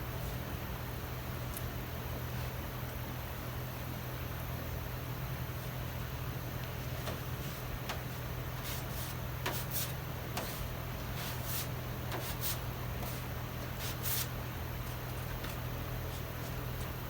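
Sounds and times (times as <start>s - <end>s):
steady low hum: 0.0s - 17.0s
spreader scraping filler on panel: 7.1s - 15.4s.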